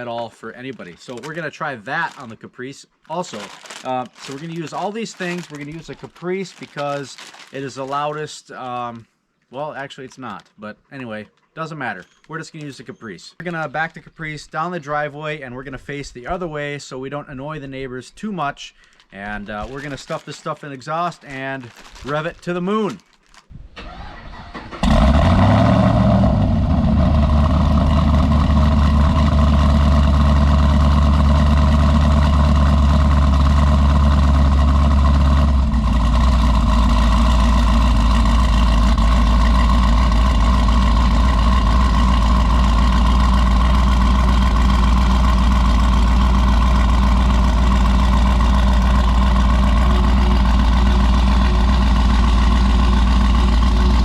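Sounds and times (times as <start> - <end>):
car engine cranking and starting: 23.7 - 54.0
car engine idling: 23.9 - 54.0.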